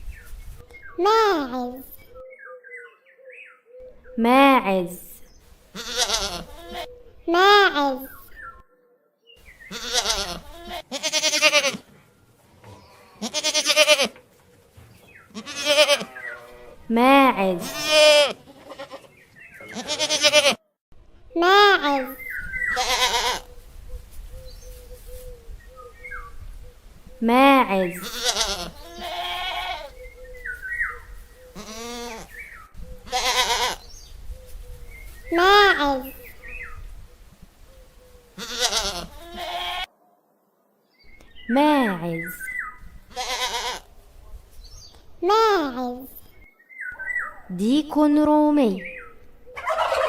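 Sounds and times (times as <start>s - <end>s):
goat bleating: 5.7s - 6.9s, 9.7s - 11.9s, 13.2s - 14.2s, 15.3s - 16.8s, 17.4s - 20.6s, 21.6s - 23.5s, 27.9s - 30.0s, 31.6s - 32.4s, 33.0s - 33.8s, 38.4s - 39.9s, 43.1s - 43.9s.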